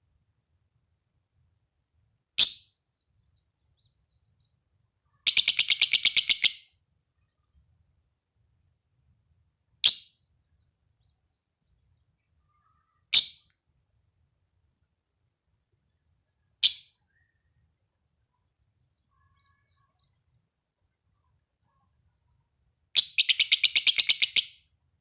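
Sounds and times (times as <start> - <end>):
bird giving sharp high chirps: 5.3 - 6.6, 13.1 - 13.4, 23.0 - 24.6.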